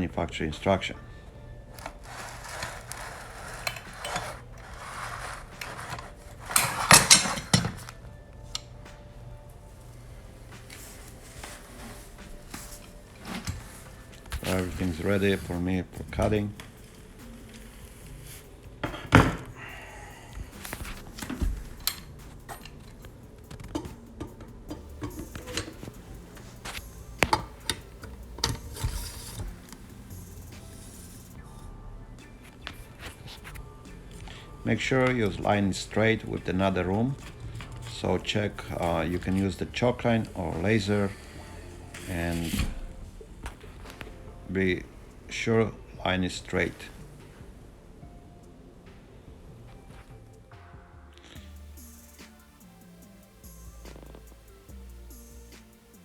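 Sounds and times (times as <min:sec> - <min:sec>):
tools rubbing and scraping: 0:01.6 - 0:09.0, 0:09.6 - 0:44.3.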